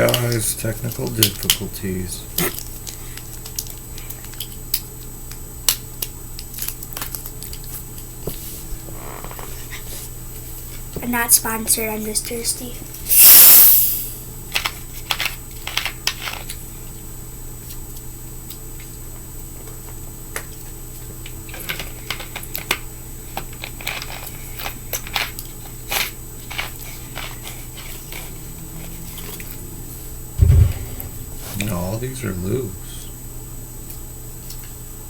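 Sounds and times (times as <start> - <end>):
steady low hum: 27.5 - 34.2.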